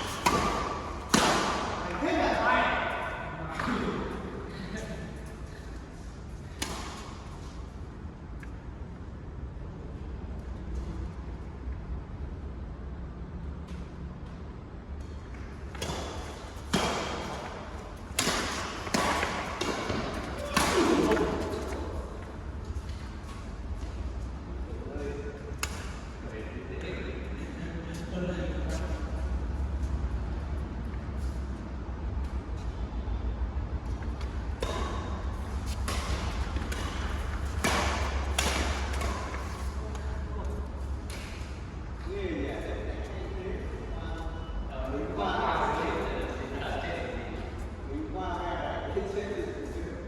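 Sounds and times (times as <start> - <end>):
rackets hitting shuttlecock: 0.0 - 2.0, 6.5 - 7.2, 15.6 - 22.2, 34.1 - 40.1
steady low hum: 0.0 - 50.0.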